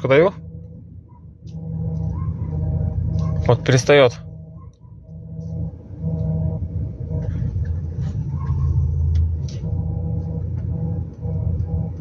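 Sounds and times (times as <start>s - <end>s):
car engine idling: 0.0s - 12.0s
power steering pump humming: 0.0s - 12.0s.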